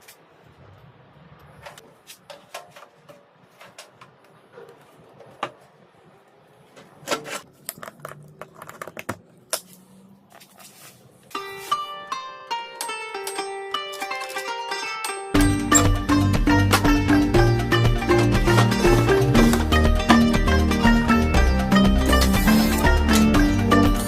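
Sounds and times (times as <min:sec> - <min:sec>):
plucked-string music: 0:11.3 - 0:24.0.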